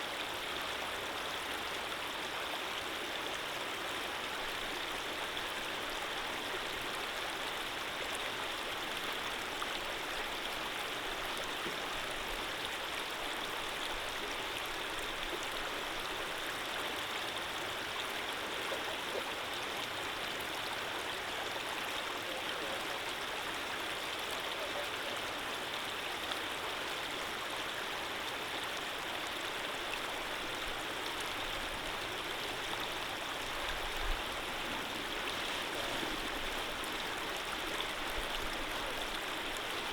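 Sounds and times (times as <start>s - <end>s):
stream of running water: 0.0s - 39.9s.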